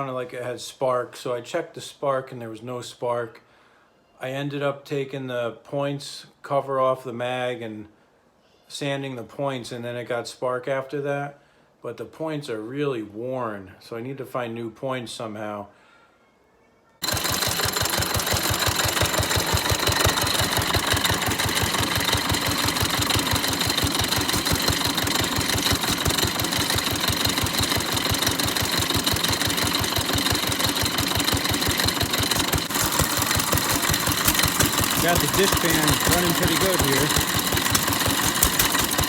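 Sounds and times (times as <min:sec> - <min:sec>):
stationary gas engine running: 0:17.0 - 0:39.0.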